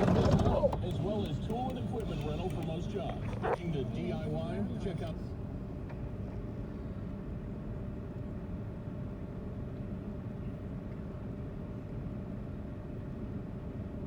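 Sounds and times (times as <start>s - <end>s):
car engine running at low revs: 0.0s - 6.6s.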